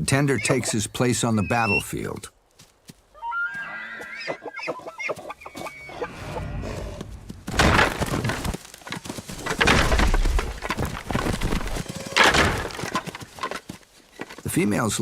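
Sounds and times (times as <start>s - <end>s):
elk squealing calls: 0.2s - 1.9s, 3.2s - 6.3s
antlers clattering: 7.0s - 14.7s.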